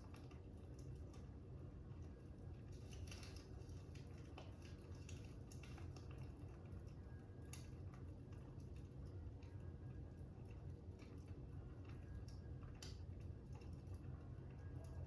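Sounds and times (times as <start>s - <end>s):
fire crackling: 0.0s - 15.0s
low steady rumble: 0.0s - 15.0s.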